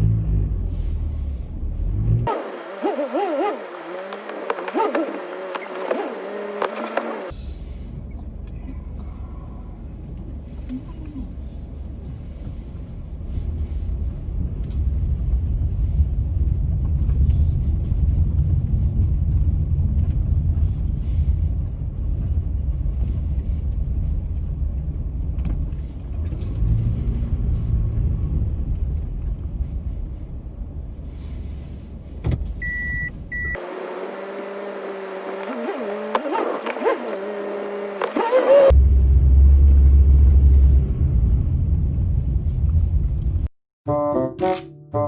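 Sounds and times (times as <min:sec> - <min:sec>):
car engine and road noise: 0:01.9 - 0:07.3, 0:33.6 - 0:38.7
short high electronic beep: 0:04.5 - 0:07.3, 0:33.6 - 0:38.7.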